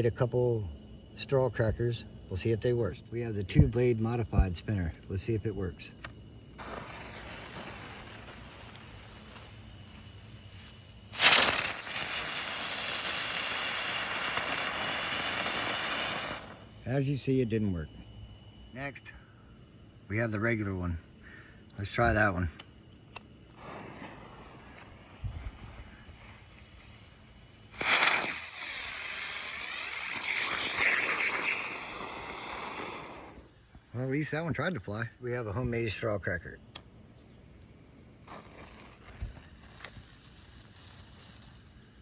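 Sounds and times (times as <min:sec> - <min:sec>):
firework hissing: 0:06.2 - 0:16.9, 0:19.2 - 0:33.6, 0:36.6 - 0:42.0
firework igniting with loud burst: 0:06.4 - 0:16.8, 0:23.2 - 0:33.6, 0:36.6 - 0:42.0.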